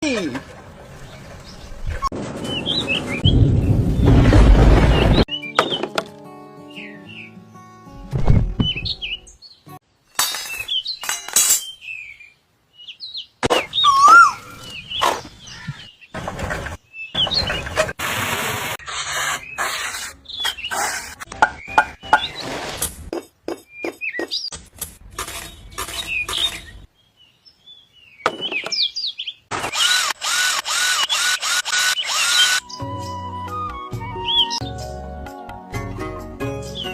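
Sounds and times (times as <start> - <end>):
bird chirps: 8.2 - 9.7, 10.5 - 16.2, 19.4 - 22.5, 23.6 - 24.6, 25.4 - 29.5
small power tool noise: 29.5 - 32.6.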